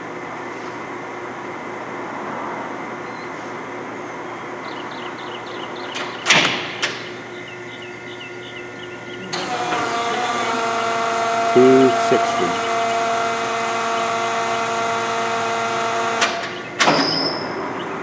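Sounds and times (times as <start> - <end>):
lathe running: 9.2 - 16.8.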